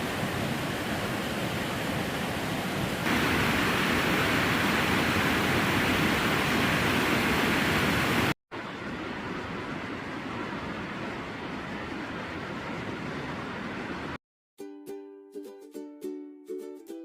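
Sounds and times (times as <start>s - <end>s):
waterfall rushing: 0.0s - 8.4s
quieter steady rushing noise: 0.0s - 14.2s.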